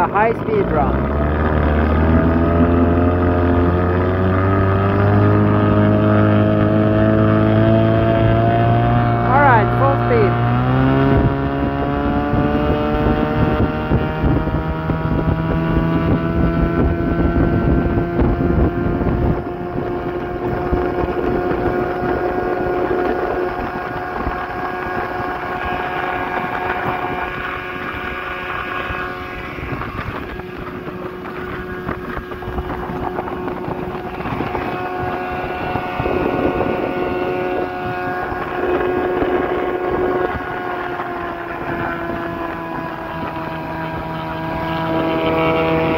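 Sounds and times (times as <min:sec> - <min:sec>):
outboard engine at full throttle: 0:00.0 - 0:45.9.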